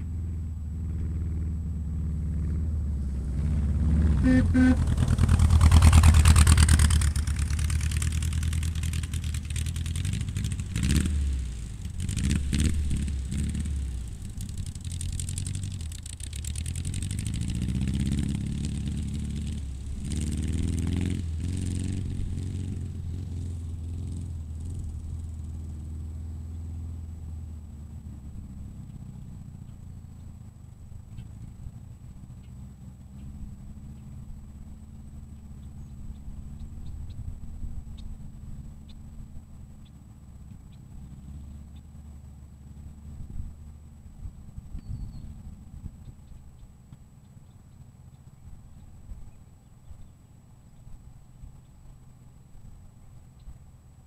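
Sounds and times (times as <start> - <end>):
car engine revving: 0.0 - 29.9.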